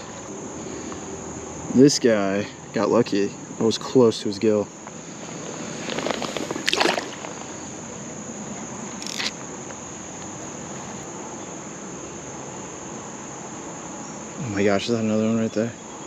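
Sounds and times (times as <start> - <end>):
insects trilling: 0.0 - 16.0
water splashing: 5.2 - 8.0.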